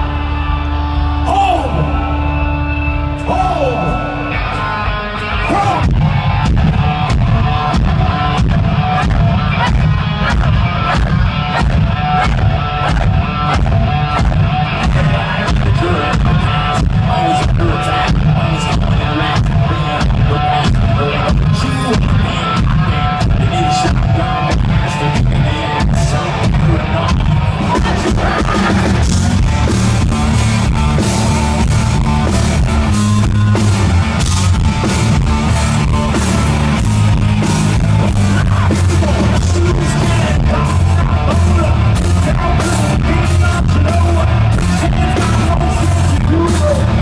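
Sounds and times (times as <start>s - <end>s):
hard rock band playing: 0.0s - 47.0s
person singing: 37.9s - 47.0s.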